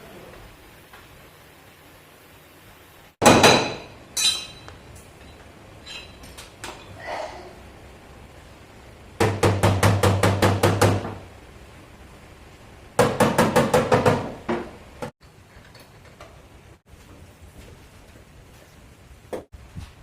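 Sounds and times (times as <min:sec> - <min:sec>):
hammer beating sheet metal: 0:03.2 - 0:04.6.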